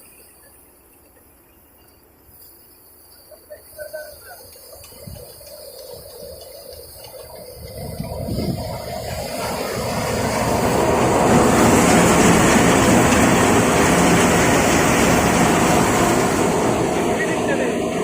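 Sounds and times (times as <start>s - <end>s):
loud machinery noise: 5.1s - 18.0s.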